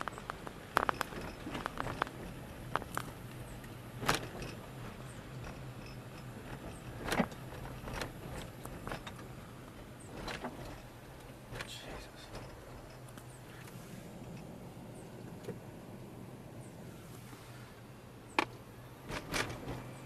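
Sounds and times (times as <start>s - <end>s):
sharp clicks and knocks: 0.0s - 4.6s, 5.3s - 13.7s, 18.3s - 19.9s
vehicle hum from inside cab: 0.0s - 20.0s.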